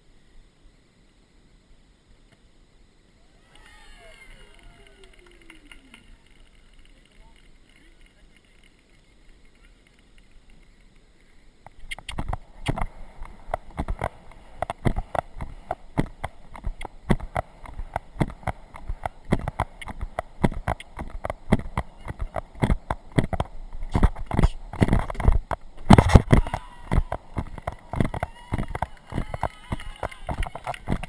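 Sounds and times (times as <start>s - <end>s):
horse hoofbeats and jolts: 12.0s - 31.0s.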